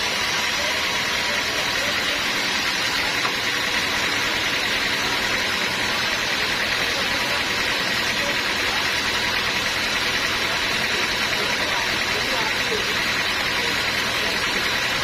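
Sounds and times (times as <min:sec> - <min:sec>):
high mechanical whine: 0:00.0 - 0:15.0
sawmill machinery running: 0:00.0 - 0:15.0.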